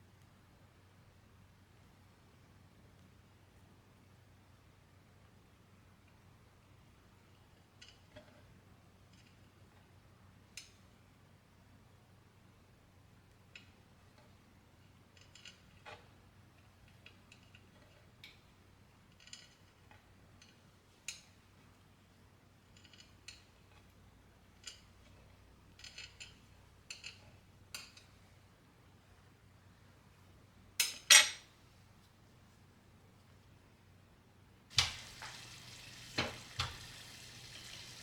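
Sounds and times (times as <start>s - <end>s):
utensils and dishes clinking: 30.8s - 31.5s.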